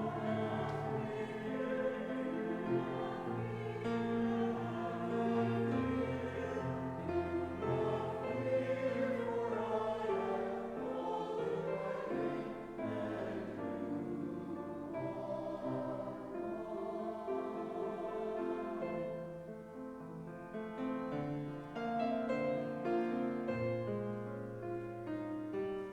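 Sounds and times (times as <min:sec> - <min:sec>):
choir singing with accompaniment: 0:00.0 - 0:19.5.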